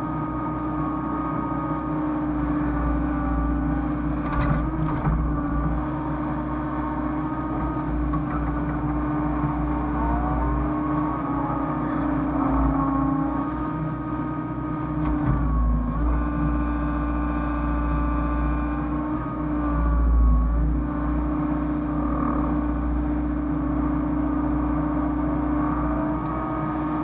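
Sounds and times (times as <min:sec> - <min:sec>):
excavator diesel engine running: 0:00.0 - 0:27.0
hydraulic whine: 0:00.0 - 0:27.0.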